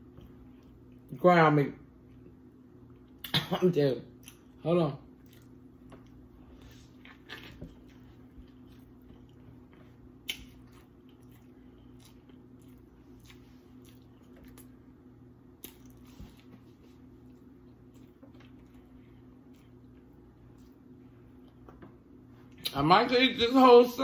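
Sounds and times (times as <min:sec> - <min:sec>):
steady low hum: 0:00.0 - 0:24.0
person chewing a hamburger: 0:04.1 - 0:22.7
wet mouth smacks: 0:10.2 - 0:10.7.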